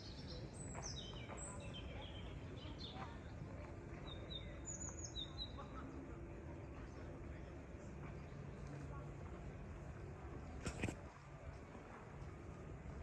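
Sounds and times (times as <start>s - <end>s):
small birds chirping: 0.0s - 6.0s
low outdoor background noise: 0.0s - 13.0s.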